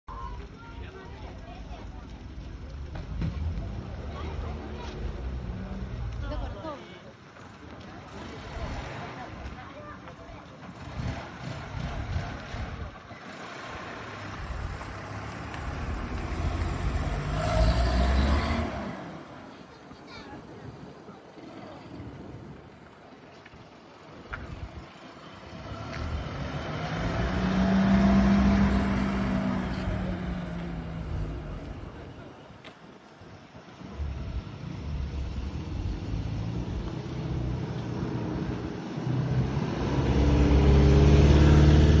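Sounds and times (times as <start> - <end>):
car engine revving: 10.8 - 19.3, 25.6 - 32.0, 34.0 - 42.0.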